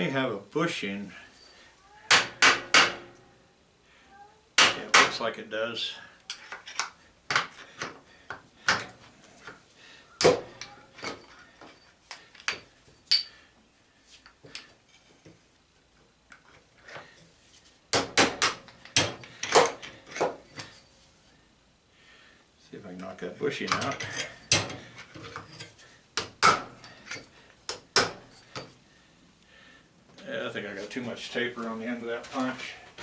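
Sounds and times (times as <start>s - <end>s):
metal tools clinking on workbench: 10.2s - 13.4s, 18.4s - 20.9s, 23.6s - 25.8s, 26.4s - 28.8s.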